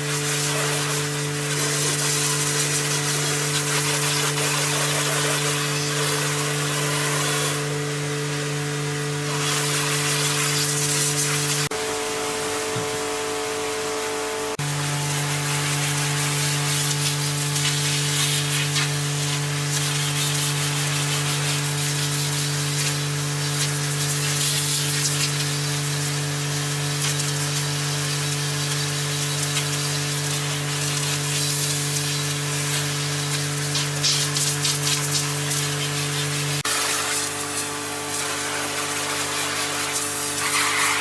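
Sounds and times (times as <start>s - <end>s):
steady machine hum: 5.3s - 18.1s.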